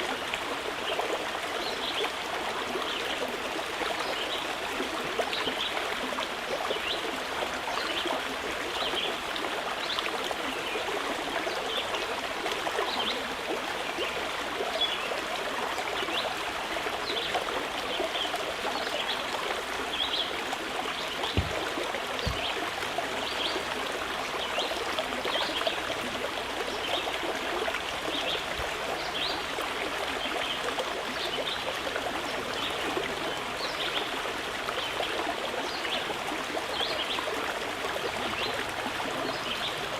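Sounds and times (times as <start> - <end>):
river flowing over rocks: 18.5 - 26.8
low knocks: 21.3 - 22.8.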